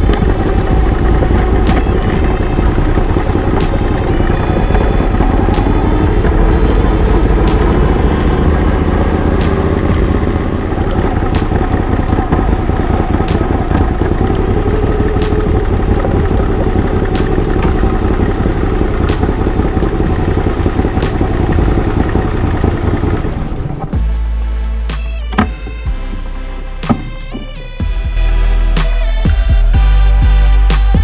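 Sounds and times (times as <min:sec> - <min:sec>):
sharp ticks: 0:00.0 - 0:08.7
motorcycle engine running: 0:00.0 - 0:31.0.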